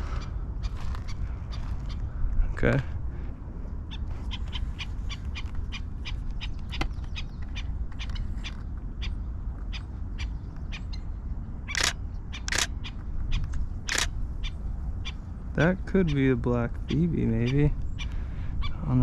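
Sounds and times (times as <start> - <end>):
small bird calling: 3.9 - 15.3
camera shutter clicks: 11.7 - 12.8, 13.9 - 14.1.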